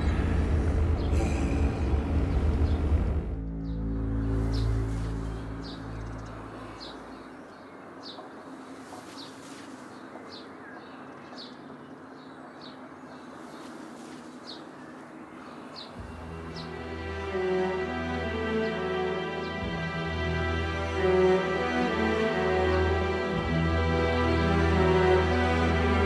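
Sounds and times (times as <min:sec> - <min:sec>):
bird chirping: 0:00.0 - 0:20.0.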